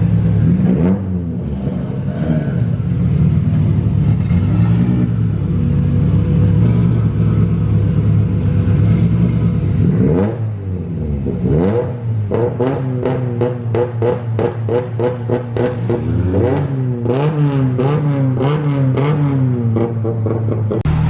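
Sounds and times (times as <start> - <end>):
car engine running under load: 0.0 - 10.7, 20.8 - 21.0.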